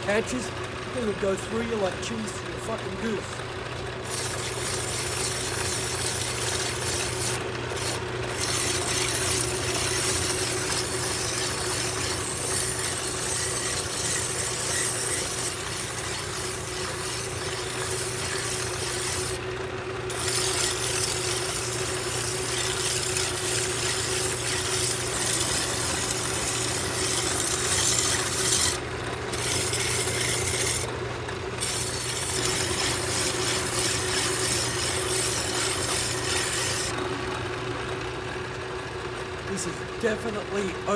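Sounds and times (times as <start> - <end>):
lathe humming: 0.0 - 40.9
file rasping against metal: 4.0 - 19.5, 20.1 - 31.0, 31.6 - 36.9.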